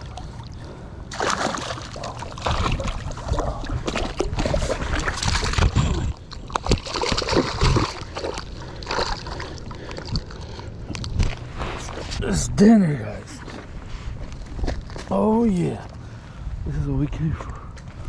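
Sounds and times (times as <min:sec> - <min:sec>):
water splashing and sloshing: 0:00.0 - 0:12.2.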